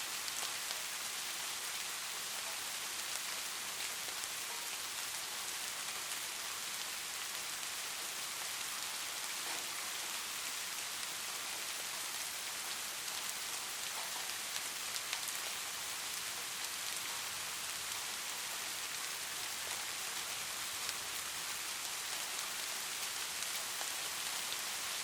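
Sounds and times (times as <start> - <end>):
light rain falling: 0.0 - 25.0.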